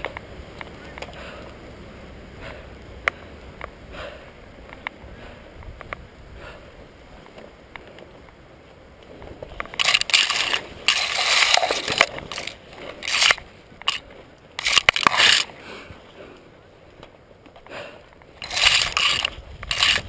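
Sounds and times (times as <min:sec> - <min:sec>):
faint clicks: 0:04.6 - 0:05.0, 0:05.6 - 0:06.0
crunching and scraping: 0:09.0 - 0:20.0.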